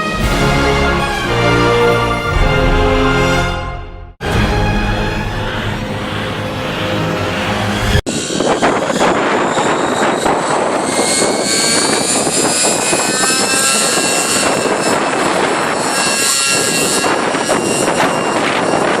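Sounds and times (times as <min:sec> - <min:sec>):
rc helicopter engine whine: 0:04.5 - 0:19.0
wind buffeting microphone: 0:07.8 - 0:19.0.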